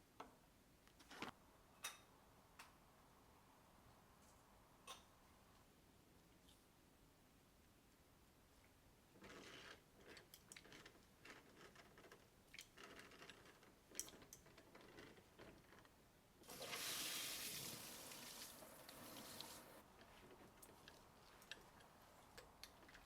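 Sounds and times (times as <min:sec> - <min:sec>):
running water: 0:16.5 - 0:19.8.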